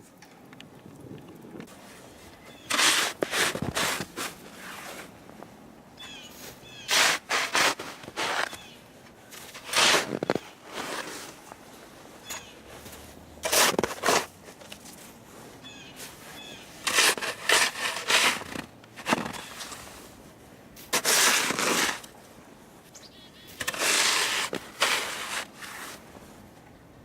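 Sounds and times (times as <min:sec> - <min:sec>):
snow shovel scraping snow: 0:01.7 - 0:05.2, 0:06.3 - 0:08.7, 0:09.3 - 0:11.5, 0:12.7 - 0:14.3, 0:16.0 - 0:20.2, 0:20.8 - 0:22.1, 0:23.6 - 0:26.1.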